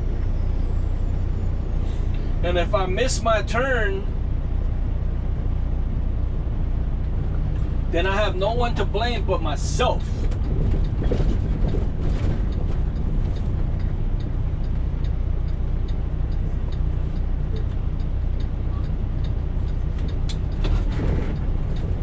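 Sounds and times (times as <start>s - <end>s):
diesel truck engine running: 0.0s - 22.0s
light regular ticking: 11.6s - 20.6s.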